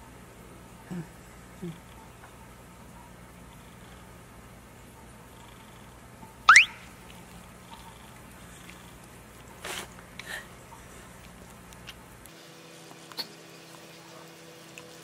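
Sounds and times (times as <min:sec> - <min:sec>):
faint steady hum: 0:00.0 - 0:15.0
dog licking: 0:06.9 - 0:10.2.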